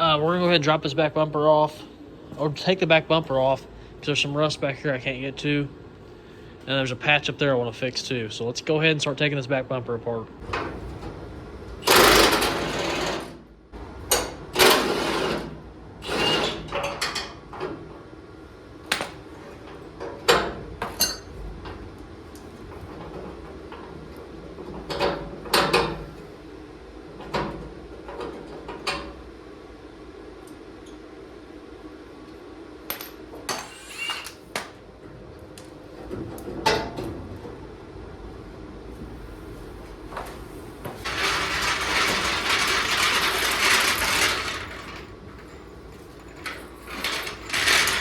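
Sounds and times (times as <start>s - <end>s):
metal tools clanking and knocking: 20.3s - 21.3s, 41.0s - 48.0s.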